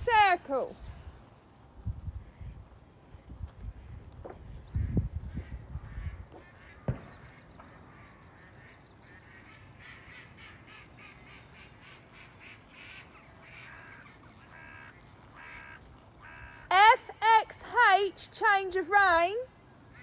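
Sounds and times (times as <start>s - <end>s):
faint bird calls: 3.2s - 16.7s.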